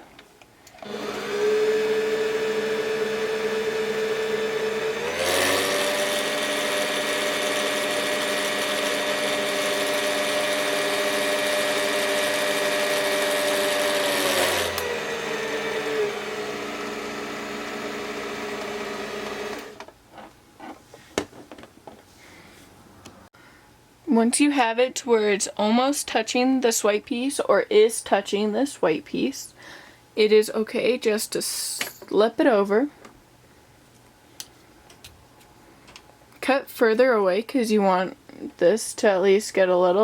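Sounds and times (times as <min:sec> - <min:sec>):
sewing machine motor whine: 0:00.8 - 0:19.8.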